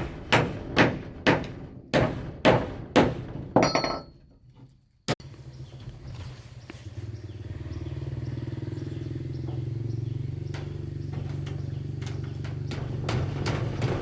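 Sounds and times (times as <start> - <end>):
small engine running: 5.2 - 14.0.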